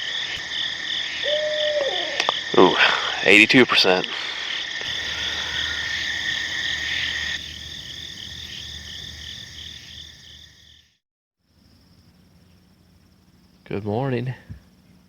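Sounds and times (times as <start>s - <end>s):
frogs croaking: 0.0s - 15.0s
insects trilling: 0.0s - 15.0s
repeating pulsed call: 4.9s - 7.8s.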